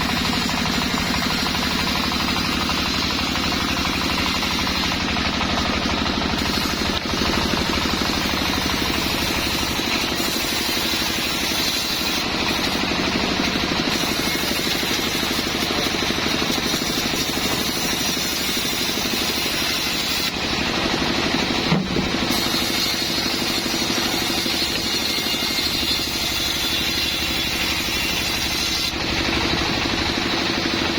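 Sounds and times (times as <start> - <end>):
sawmill engine droning: 0.0 - 30.9.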